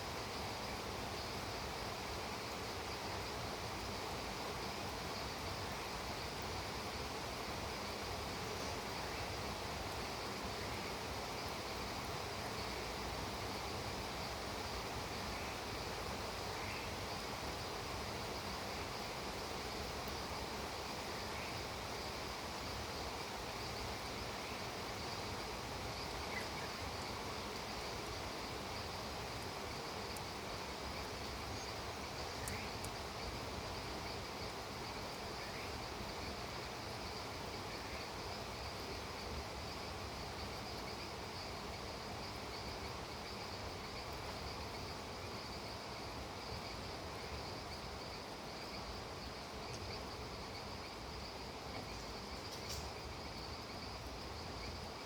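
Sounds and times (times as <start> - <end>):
insects trilling: 0.0 - 55.0
faint chirps: 31.0 - 33.0.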